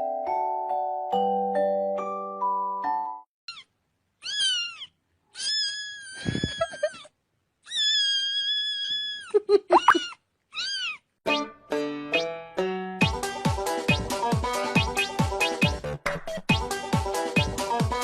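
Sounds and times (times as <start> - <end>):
music: 0.0 - 3.3, 11.2 - 18.0
cat meowing: 3.5 - 7.0, 7.6 - 11.1.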